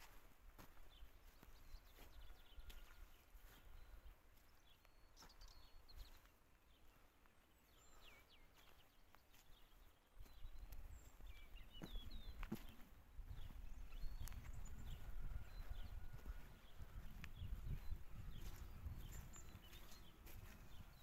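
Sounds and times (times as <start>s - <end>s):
faint bird chirps: 0.9s - 21.0s
wind rumbling on microphone: 10.2s - 21.0s.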